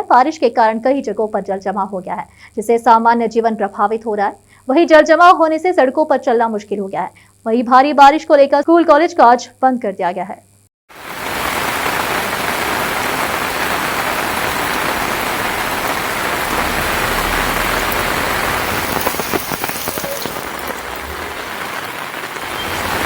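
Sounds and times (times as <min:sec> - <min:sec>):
heavy rain on hard surfaces: 0:10.9 - 0:23.0
low rumble: 0:14.4 - 0:22.5.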